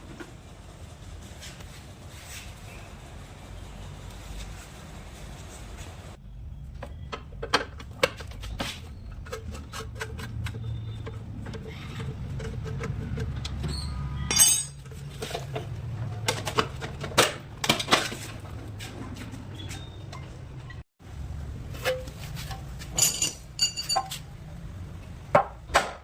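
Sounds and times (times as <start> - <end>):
tools and parts clinking: 6.7 - 18.8, 21.8 - 24.4.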